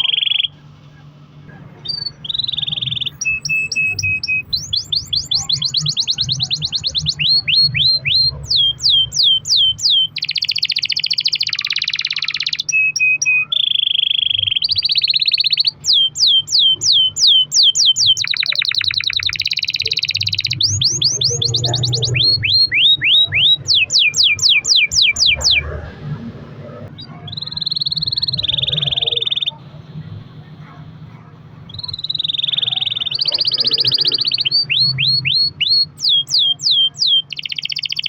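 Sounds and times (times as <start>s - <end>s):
canary singing: 0.0s - 38.0s.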